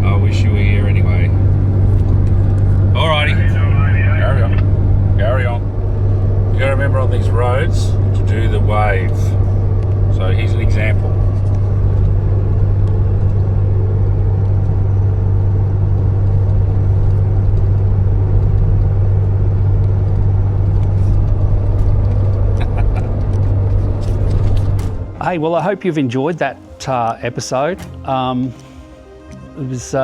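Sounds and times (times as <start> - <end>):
engine and road drone: 0.0 - 29.6.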